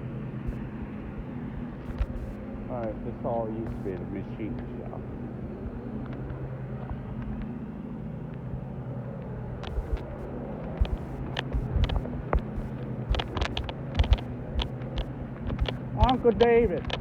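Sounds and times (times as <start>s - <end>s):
low mechanical hum: 0.0s - 17.0s
low thumps: 9.6s - 16.2s
irregular clicks: 9.6s - 17.0s.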